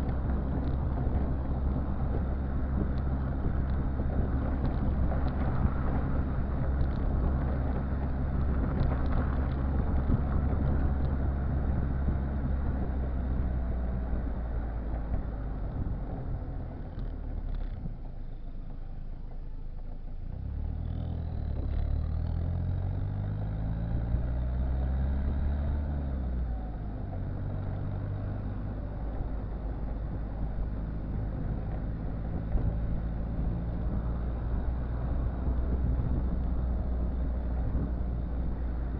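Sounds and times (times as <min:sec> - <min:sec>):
diesel engine running and revving: 0:00.0 - 0:38.9.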